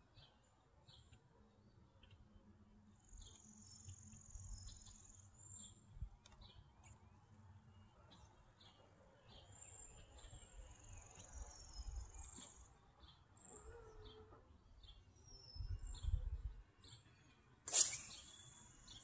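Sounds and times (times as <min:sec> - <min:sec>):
faint birdsong: 0:00.0 - 0:19.0.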